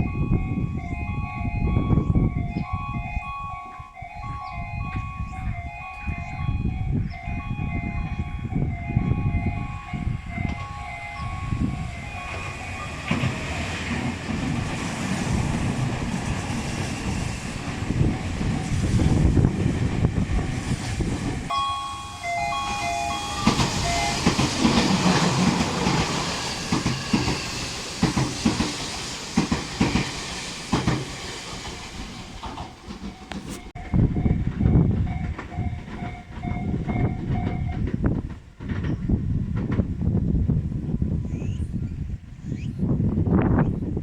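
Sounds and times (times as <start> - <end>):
electronic station chime: 0.0 - 13.5, 21.5 - 24.7
train passing with rail clatter: 0.0 - 44.0
wind buffeting microphone: 0.0 - 44.0.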